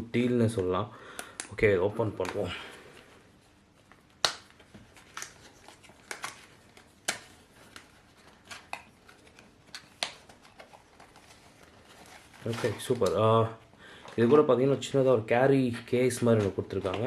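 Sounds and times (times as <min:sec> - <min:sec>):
packaging rustling: 0:02.1 - 0:14.9
box clicks and snaps: 0:04.2 - 0:05.4, 0:07.0 - 0:07.9.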